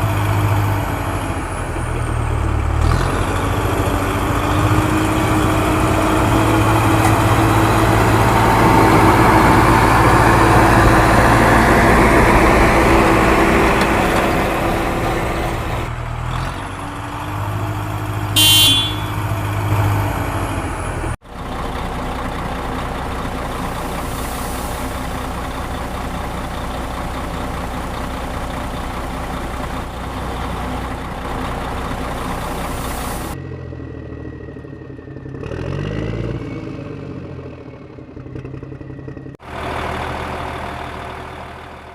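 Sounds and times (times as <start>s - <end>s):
heavy diesel engines running: 0.0s - 41.9s
short high-pitched beep: 18.4s - 19.1s.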